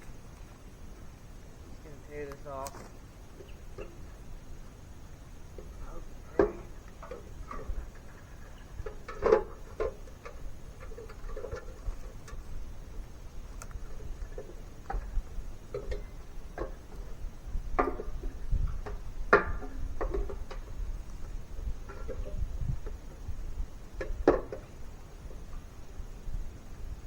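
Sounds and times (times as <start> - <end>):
light clicks and knocks: 5.6 - 12.6.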